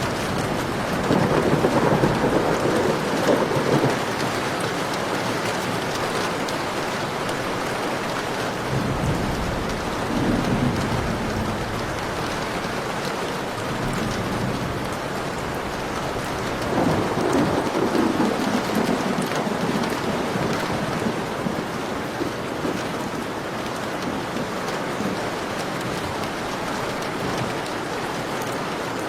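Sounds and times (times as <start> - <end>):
rolling thunder: 0.0 - 6.5, 8.6 - 23.2
heavy rain pouring: 0.0 - 29.0.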